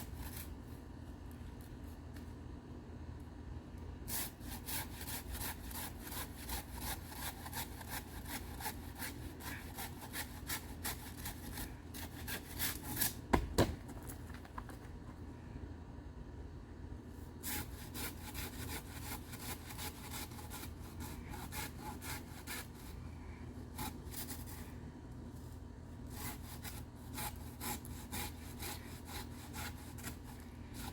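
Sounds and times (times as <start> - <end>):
pruning saw sawing through stalk: 4.1 - 13.3, 17.4 - 23.0, 26.0 - 30.9
loud knocks: 13.3 - 14.0.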